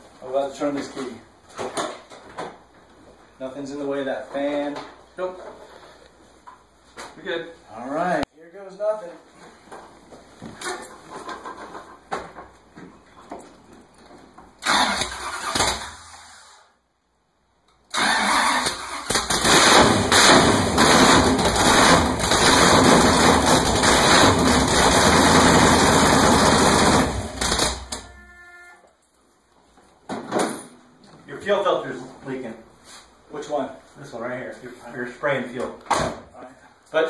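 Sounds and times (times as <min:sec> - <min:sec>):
starter motor cranking: 0:14.6 - 0:16.2, 0:17.9 - 0:28.0.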